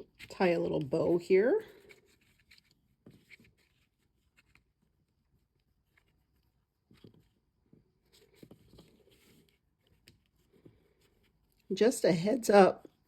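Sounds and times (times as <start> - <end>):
faint rustles and light taps: 5.5 - 11.7.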